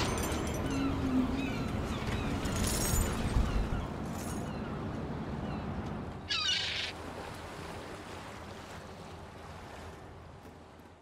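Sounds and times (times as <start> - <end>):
sea-like noise: 6.2 - 10.4.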